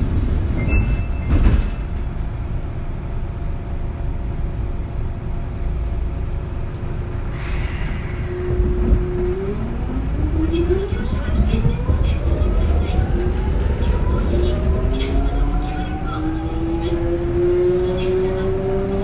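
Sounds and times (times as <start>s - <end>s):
train clatter: 0.0s - 2.4s, 10.4s - 16.2s
train wheels rumbling on rail: 0.0s - 19.0s.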